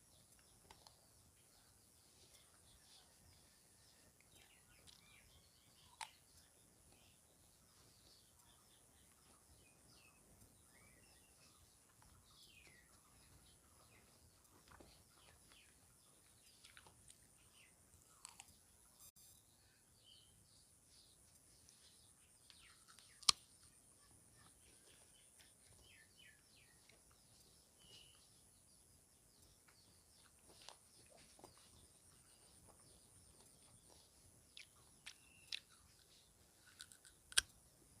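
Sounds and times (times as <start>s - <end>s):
small birds chirping: 0.0s - 38.0s
chewing crunchy fruit: 0.2s - 18.9s, 21.6s - 28.3s, 29.4s - 38.0s
sharp clicks: 36.8s - 37.6s.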